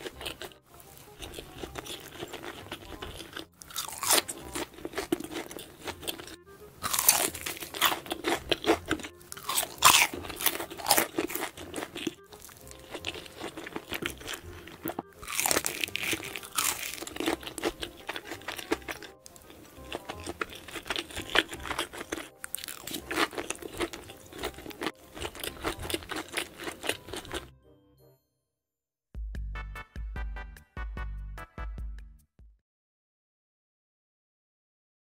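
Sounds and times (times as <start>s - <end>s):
crunching and chewing fried chicken: 0.0s - 27.5s.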